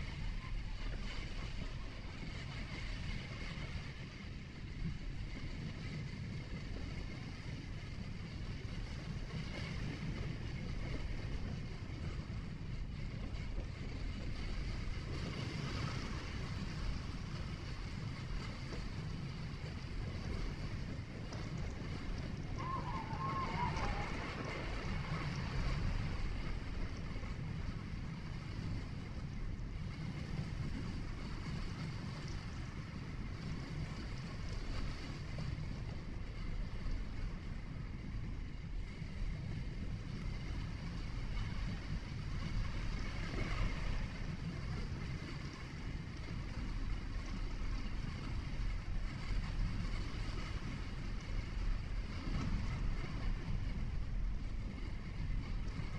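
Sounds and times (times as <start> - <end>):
wind noise: 0.0 - 55.9
tyre and engine noise: 19.6 - 28.1.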